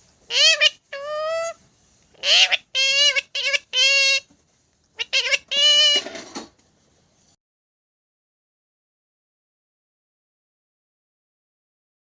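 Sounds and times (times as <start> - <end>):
parrot talking: 0.3 - 1.6, 2.2 - 4.3, 5.0 - 6.2.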